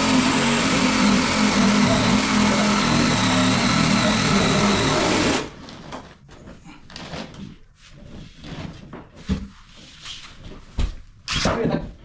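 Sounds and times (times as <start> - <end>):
motor running: 0.0 - 5.5.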